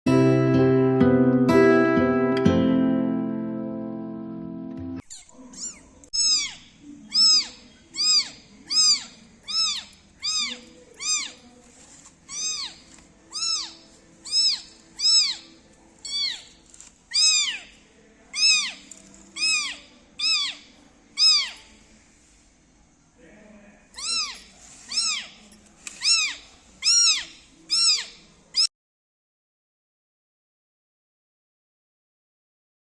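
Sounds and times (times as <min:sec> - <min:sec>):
kitten meowing: 0:05.0 - 0:11.4, 0:12.3 - 0:17.7, 0:18.3 - 0:20.6, 0:21.2 - 0:21.7, 0:24.0 - 0:25.3, 0:26.0 - 0:28.7.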